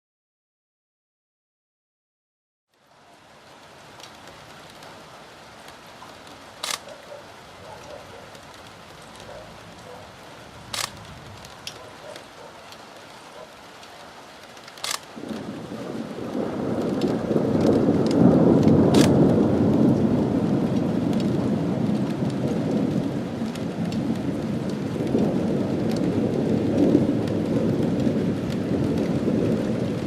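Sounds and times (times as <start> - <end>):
steady rain: 2.7 - 30.0
thunder rumbling: 3.6 - 30.0
short sharp clicks: 6.6 - 6.9, 14.8 - 15.1.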